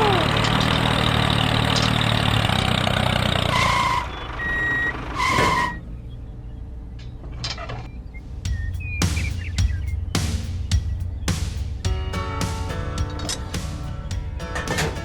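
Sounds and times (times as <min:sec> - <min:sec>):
short electronic beeps: 0:03.7 - 0:05.0.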